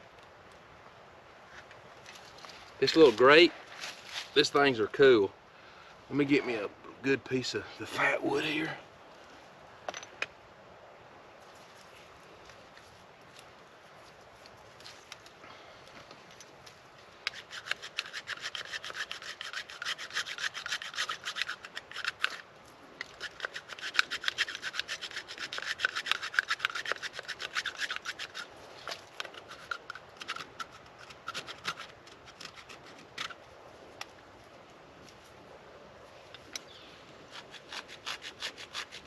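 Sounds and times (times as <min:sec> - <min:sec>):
knife scraping wood: 0:17.3 - 0:33.4, 0:37.3 - 0:39.0.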